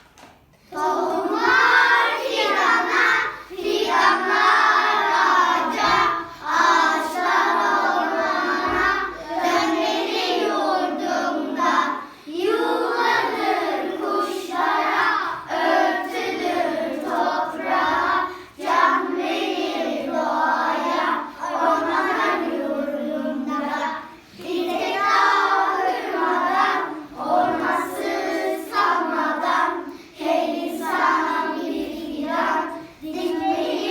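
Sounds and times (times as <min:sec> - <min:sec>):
children singing: 0:00.7 - 0:33.9.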